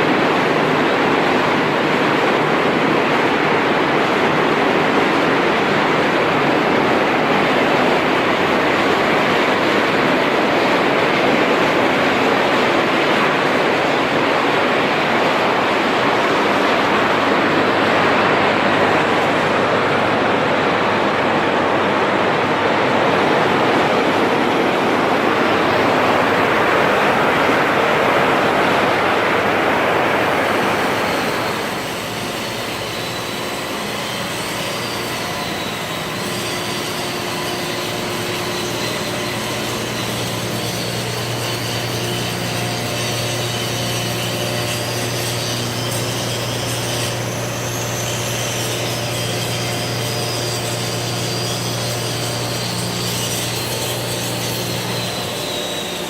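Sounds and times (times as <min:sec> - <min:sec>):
loud rough rushing noise: 0:00.0 - 0:42.7
machine running: 0:00.0 - 0:56.0
faint high whine: 0:06.0 - 0:56.0.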